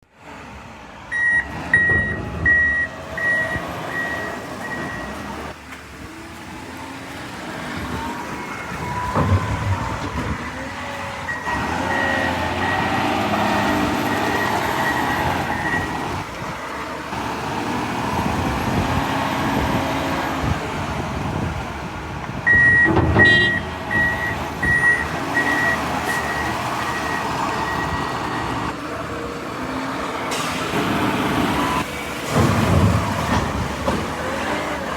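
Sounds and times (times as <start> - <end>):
diesel engine under load: 0.0 - 34.9
backup alarm beeping: 1.1 - 5.2, 11.2 - 16.0, 22.5 - 28.5
loud knocks: 8.8 - 10.5.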